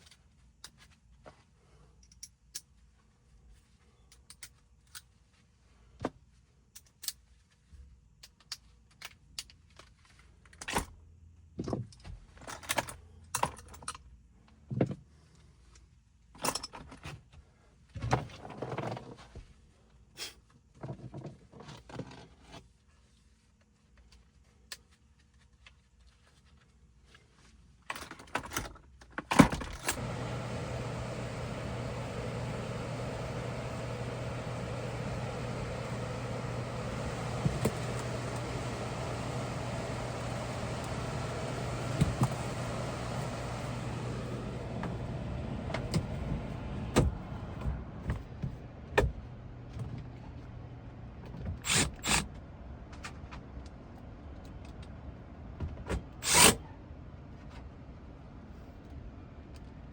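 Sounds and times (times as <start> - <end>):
steady machine hum: 29.9 - 51.0.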